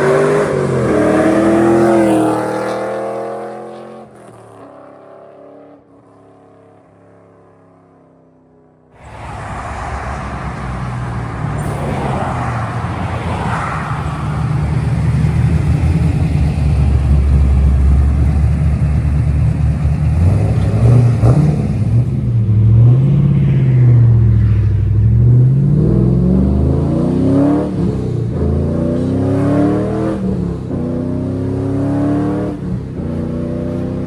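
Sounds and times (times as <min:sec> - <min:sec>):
car engine with choppy exhaust: 0:09.0 - 0:34.0.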